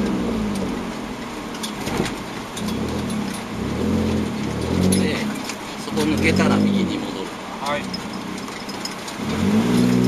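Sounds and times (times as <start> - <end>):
car engine revving: 0.0 - 10.0
clicks and rattles: 7.6 - 10.0.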